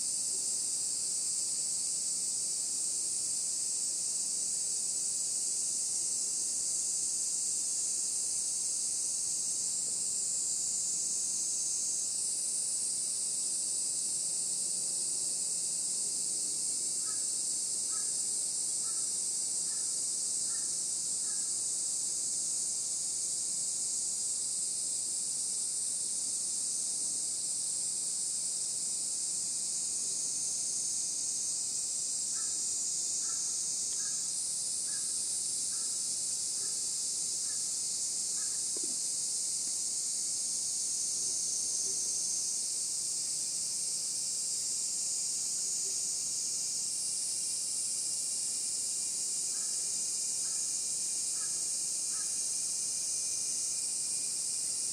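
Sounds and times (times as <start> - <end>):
insects shrilling: 29.7 - 54.9.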